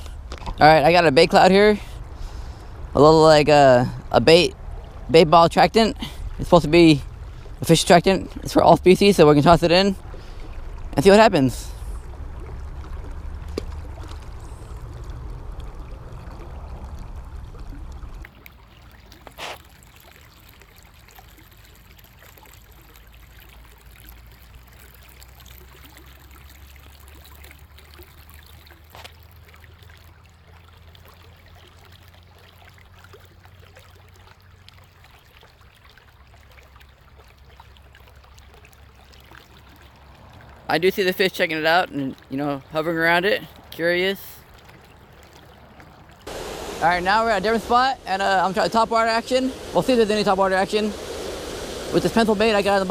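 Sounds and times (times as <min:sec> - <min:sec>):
creek water trickling: 0:00.0 - 0:52.9
low rumble: 0:46.3 - 0:52.9.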